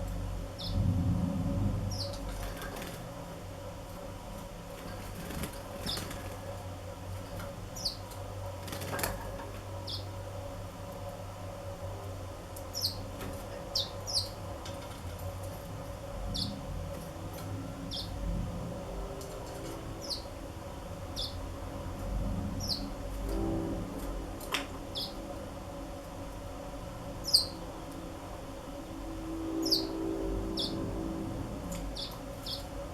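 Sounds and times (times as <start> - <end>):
steady low hum: 0.0 - 32.9
canaries chirping: 0.6 - 0.8, 1.9 - 2.9, 4.9 - 6.4, 7.8 - 8.1, 9.8 - 10.1, 12.7 - 15.0, 16.2 - 16.7, 17.3 - 18.2, 19.1 - 20.4, 21.0 - 21.5, 22.6 - 23.1, 24.9 - 25.2, 27.2 - 27.6, 29.5 - 32.7.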